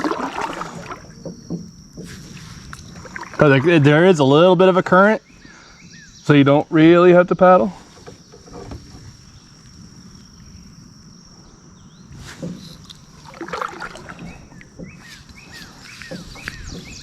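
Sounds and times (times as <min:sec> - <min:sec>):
knocks and water from kayak: 0:00.0 - 0:10.8, 0:11.4 - 0:17.0
high-pitched insect drone: 0:00.0 - 0:17.0
bird chirps: 0:04.3 - 0:07.2, 0:14.1 - 0:17.0.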